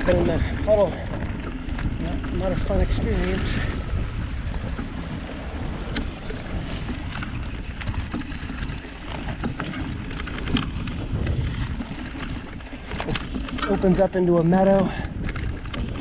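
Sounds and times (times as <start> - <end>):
bike rumbling and rattling: 0.0 - 16.0
wind noise on microphone: 0.0 - 16.0
small clicks and knocks: 5.9 - 16.0.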